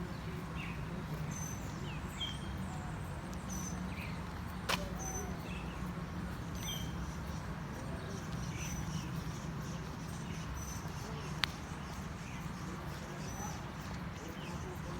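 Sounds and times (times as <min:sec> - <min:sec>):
birds chirping and whistling: 0:06.5 - 0:07.6.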